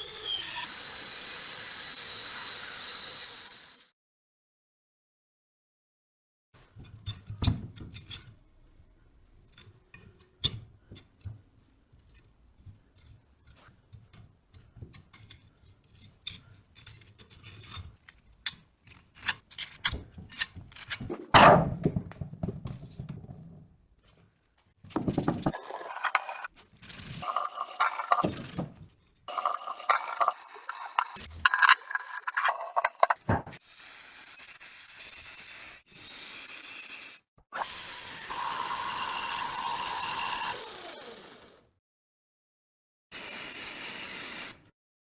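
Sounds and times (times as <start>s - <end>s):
taps clicks and scrapes on parts: 9.4s - 21.1s.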